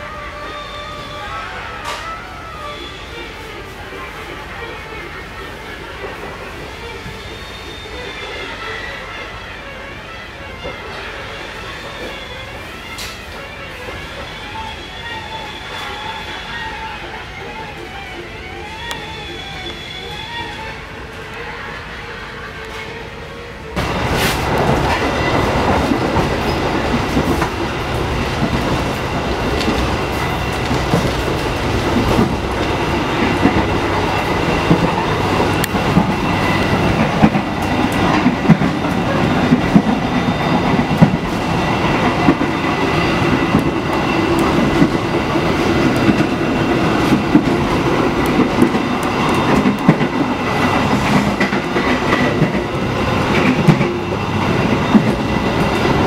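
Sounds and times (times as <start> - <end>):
wheels rumbling on track: 23.7 - 56.0.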